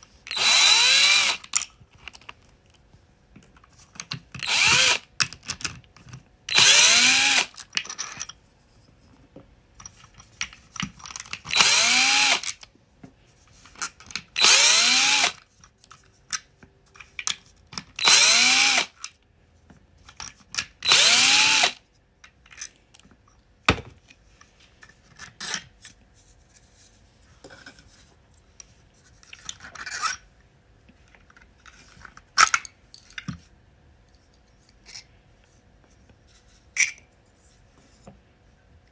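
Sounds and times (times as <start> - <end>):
parts clicking and knocking: 0.3 - 8.4, 9.2 - 12.8, 30.9 - 33.5
power driver whining: 4.4 - 5.1, 20.8 - 21.8.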